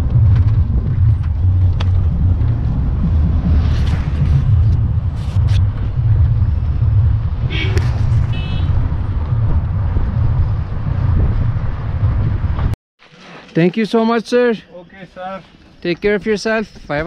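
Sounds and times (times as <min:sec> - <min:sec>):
vehicle engine and road rumble: 0:00.0 - 0:13.6.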